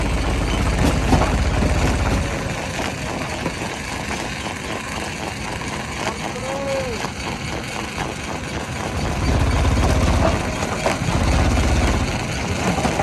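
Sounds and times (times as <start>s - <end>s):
knocks and clatter: 0.0s - 3.8s, 9.0s - 13.0s
heavy machinery engine running: 0.0s - 13.0s.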